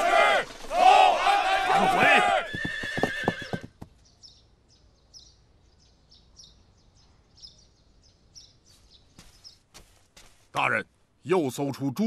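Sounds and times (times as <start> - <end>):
small birds chirping: 2.8 - 11.1.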